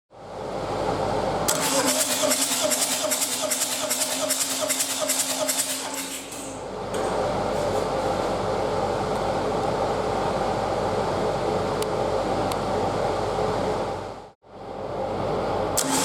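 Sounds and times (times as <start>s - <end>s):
starter motor cranking: 1.5s - 6.5s, 15.8s - 16.0s.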